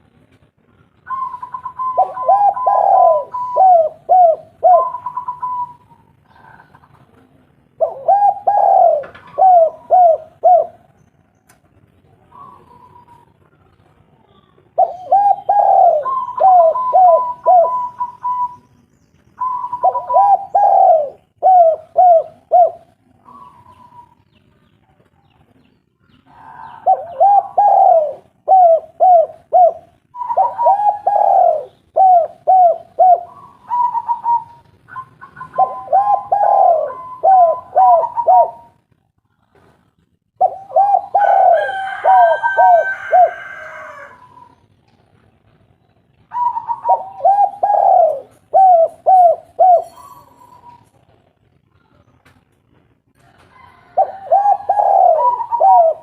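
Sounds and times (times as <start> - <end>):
higher-pitched dove voice: 1.0 - 7.0, 7.8 - 10.9, 14.2 - 18.7, 19.4 - 24.3, 26.2 - 38.8, 40.4 - 44.6, 46.3 - 50.9, 53.9 - 56.0
dove cooing: 1.0 - 11.0, 12.1 - 18.7, 19.4 - 24.4, 26.2 - 38.8, 40.3 - 44.7, 46.2 - 51.0, 53.2 - 56.0.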